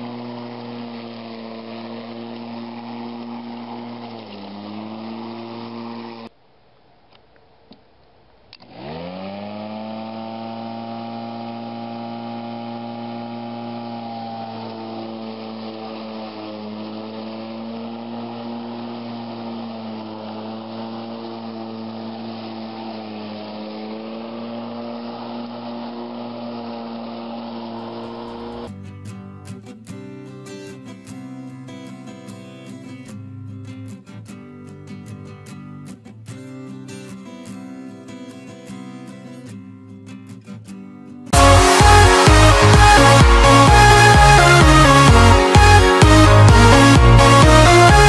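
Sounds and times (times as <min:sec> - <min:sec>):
electric lawn mower running: 0:00.0 - 0:06.3, 0:08.6 - 0:28.7, 0:41.3 - 0:48.0.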